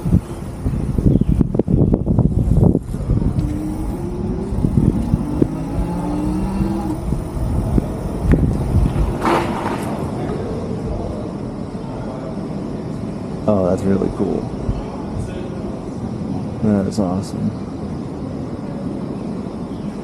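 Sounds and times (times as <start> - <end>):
tyres and wind rumble: 0.0 - 20.0
faint motor hum: 3.0 - 9.2.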